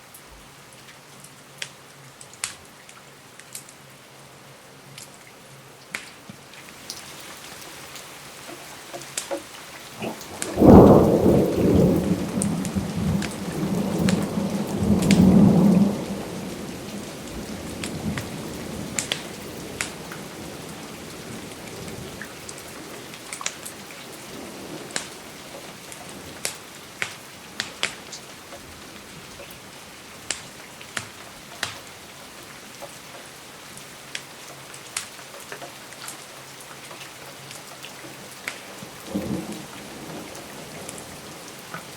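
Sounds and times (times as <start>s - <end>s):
steady rain: 0.0s - 41.9s
thunder rumbling: 10.0s - 23.2s.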